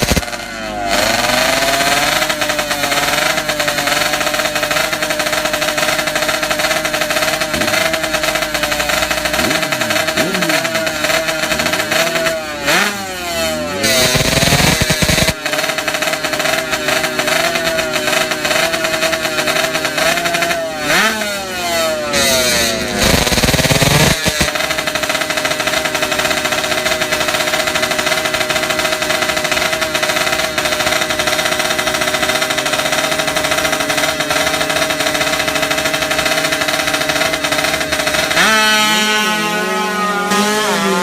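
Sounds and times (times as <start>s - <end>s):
motorcycle engine at high revs: 0.0s - 41.0s.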